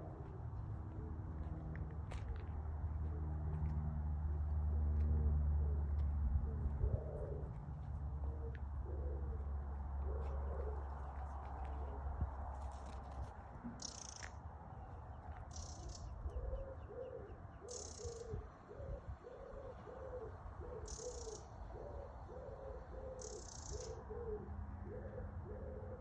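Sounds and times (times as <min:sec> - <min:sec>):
low repeated bird calls: 0:13.7 - 0:26.0.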